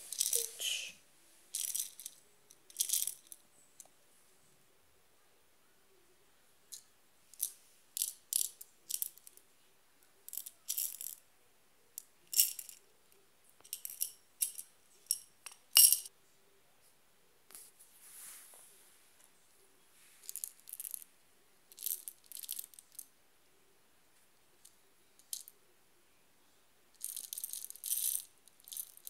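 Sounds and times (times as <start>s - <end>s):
beads rattling: 0.0s - 0.7s, 1.5s - 3.4s, 21.7s - 23.0s, 27.0s - 29.0s
soft hiss: 0.0s - 29.0s.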